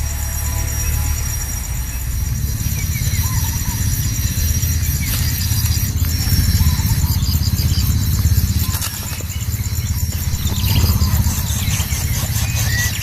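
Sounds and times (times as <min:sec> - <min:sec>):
bird chirps: 0:00.0 - 0:13.0
insects trilling: 0:00.0 - 0:13.0
low rumble: 0:09.5 - 0:12.6.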